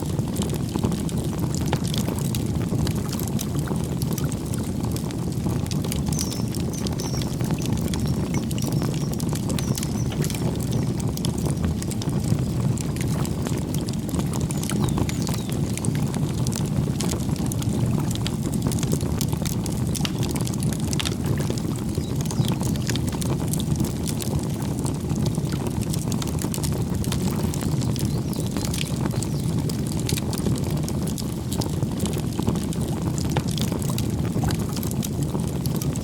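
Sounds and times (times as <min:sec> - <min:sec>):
campfire crackling and popping: 0:00.0 - 0:36.0
faint bird chirps: 0:06.0 - 0:11.0, 0:14.7 - 0:15.6, 0:21.9 - 0:22.8.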